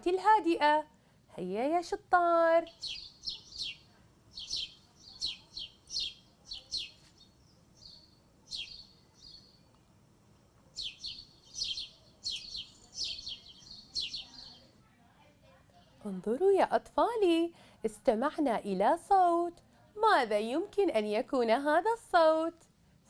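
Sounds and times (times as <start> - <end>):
small birds chirping: 1.6 - 14.8.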